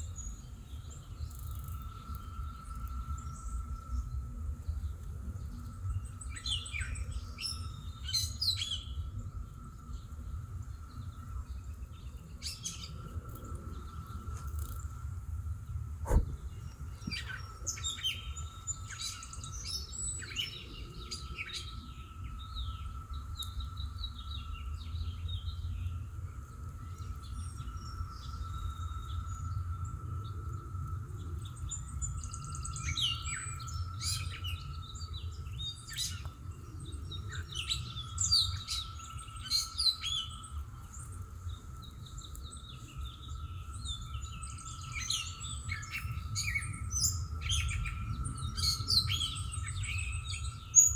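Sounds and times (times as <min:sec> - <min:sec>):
songbirds chirping and singing: 0:00.0 - 0:50.9
low rumble: 0:16.0 - 0:17.0.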